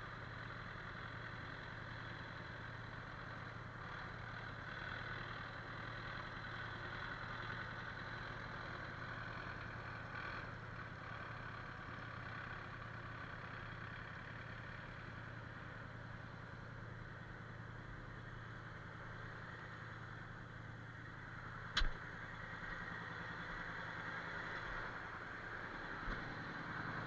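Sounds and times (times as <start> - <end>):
engine idling: 0.0 - 27.0
sharp knock: 21.8 - 22.0.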